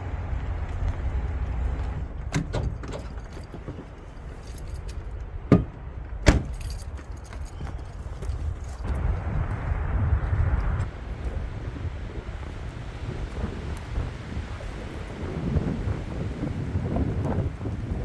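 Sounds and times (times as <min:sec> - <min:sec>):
steady low rumble: 0:00.0 - 0:18.0
light clicking and jingling: 0:00.3 - 0:09.0
sharp knocks: 0:05.5 - 0:06.6.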